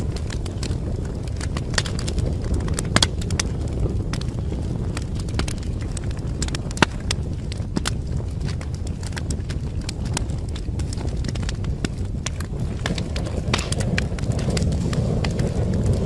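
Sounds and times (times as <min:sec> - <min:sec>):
burning wood crackling and popping: 0:00.0 - 0:16.0
low rumble of flames: 0:00.0 - 0:16.0.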